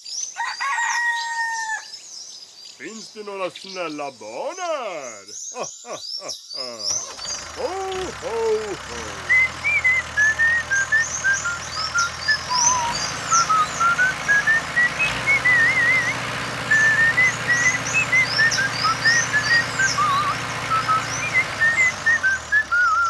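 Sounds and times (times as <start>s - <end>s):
bird-like chirps: 1.2s - 23.0s
person whistling a tune: 8.9s - 23.0s.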